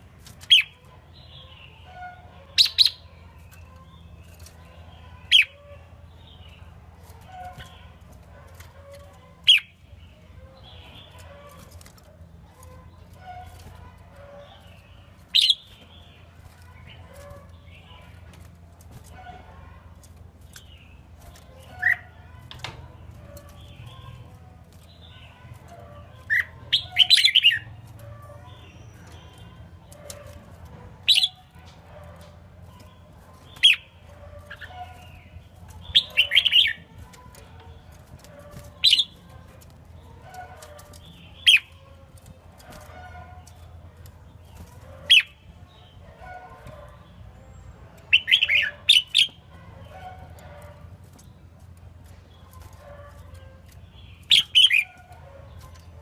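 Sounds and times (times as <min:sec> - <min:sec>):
background bird chirping: 0:00.0 - 0:56.0
bird singing bright phrases: 0:00.3 - 0:11.9, 0:13.0 - 0:18.2, 0:32.8 - 0:37.1, 0:46.6 - 0:49.5, 0:53.2 - 0:55.9.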